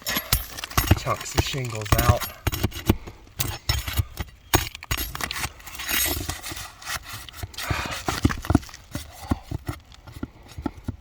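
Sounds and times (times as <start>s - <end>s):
scraping shingles on roof: 4.5s - 11.0s.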